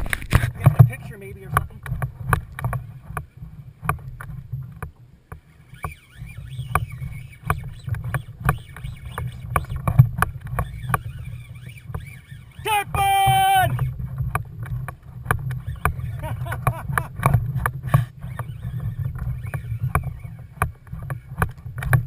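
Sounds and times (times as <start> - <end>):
steady low rumble: 16.1 - 18.2.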